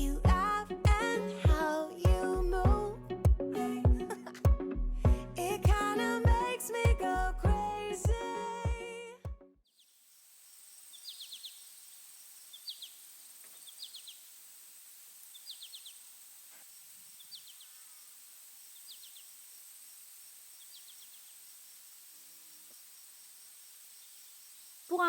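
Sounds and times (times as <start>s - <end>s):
background music: 0.0s - 9.6s
cricket chirping: 9.8s - 25.0s
steady high hiss: 9.8s - 25.0s.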